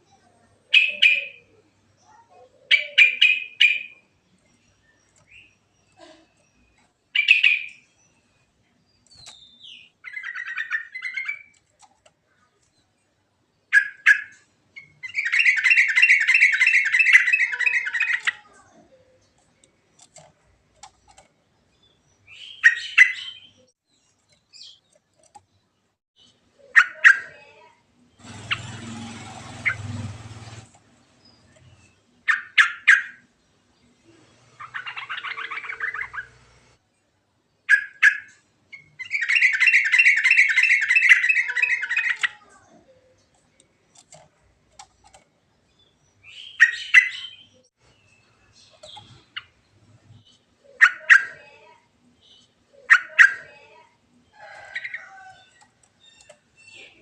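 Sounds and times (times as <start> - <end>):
bulbul calling: 0.7 - 1.6, 7.1 - 7.9.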